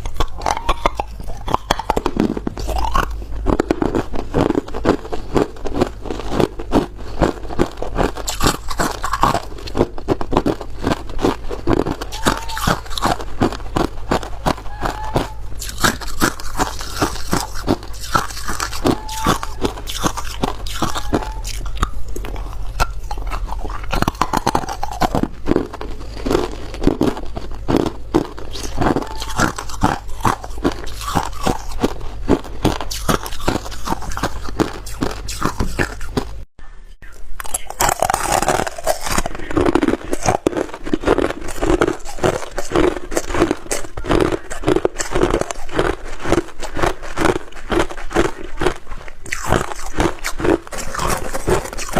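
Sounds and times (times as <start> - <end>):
ice being chewed: 0.0 - 51.9.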